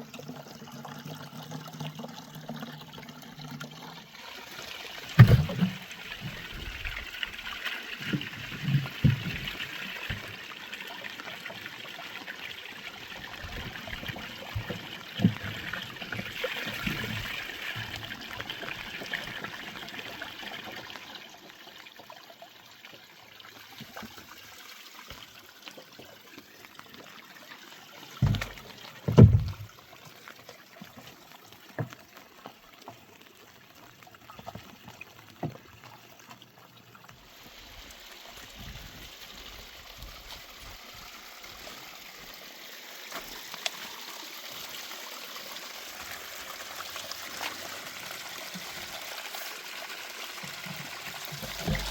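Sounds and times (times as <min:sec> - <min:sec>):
water trickling and pouring: 0:00.0 - 0:51.9
low thumps: 0:28.2 - 0:29.7.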